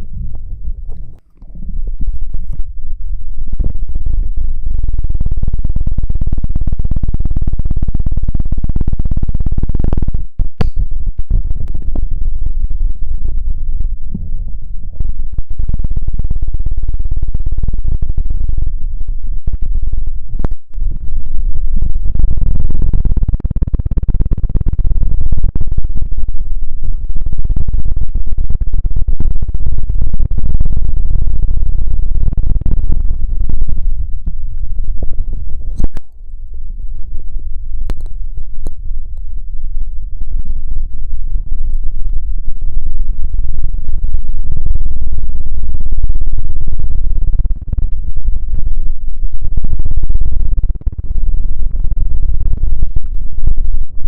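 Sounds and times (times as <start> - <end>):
rubbing against microphone: 0.0 - 2.7.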